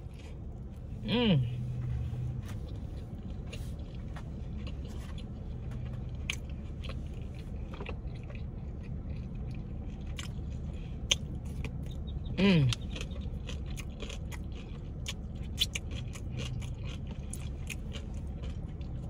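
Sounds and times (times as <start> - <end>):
person chewing food: 0.0 - 19.0
steady low hum: 0.0 - 19.0
small crunches: 12.7 - 19.0.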